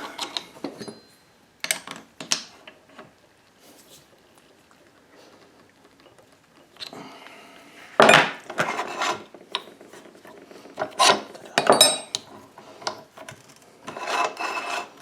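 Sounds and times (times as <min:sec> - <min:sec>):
wood scraping against metal: 0:08.0 - 0:11.5, 0:12.2 - 0:15.0.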